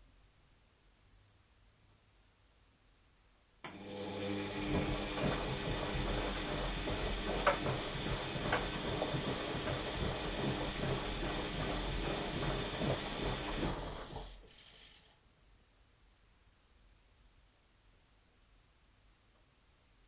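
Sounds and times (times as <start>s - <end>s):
washing machine drum humming: 3.7s - 14.6s.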